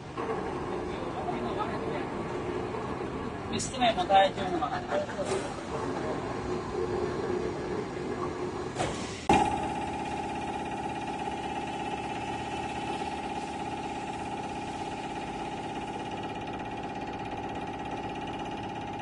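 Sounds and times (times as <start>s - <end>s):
lathe humming: 9.3s - 19.0s.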